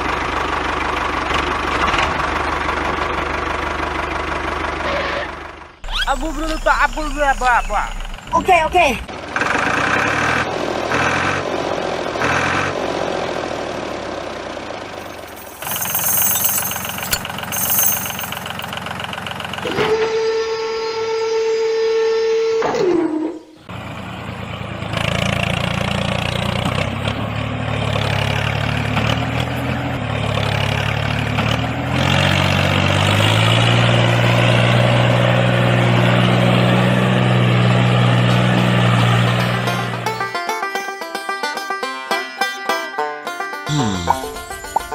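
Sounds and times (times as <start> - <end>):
engine running: 0.0 - 21.1, 23.7 - 44.9
steady high tone: 43.7 - 44.9.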